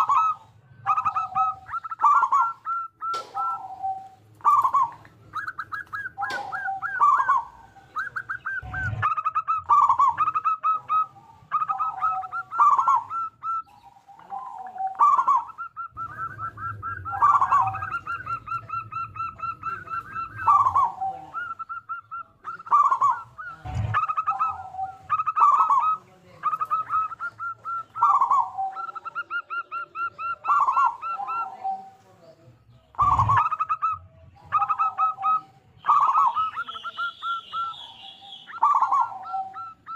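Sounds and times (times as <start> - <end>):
dove cooing song: 0.0 - 32.2, 32.9 - 39.9
low thumps: 8.6 - 9.2, 23.6 - 24.3, 33.0 - 33.5.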